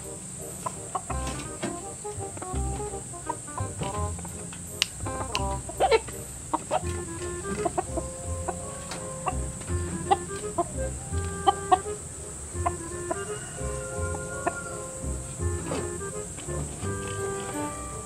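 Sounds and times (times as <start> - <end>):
chickens clucking: 0.0 - 18.0
music with steady beat: 0.0 - 18.0.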